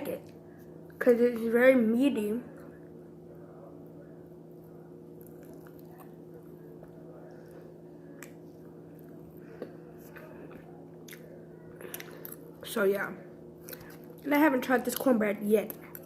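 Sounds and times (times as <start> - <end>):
low electrical hum: 0.0 - 16.0
chewing steak: 5.1 - 12.5.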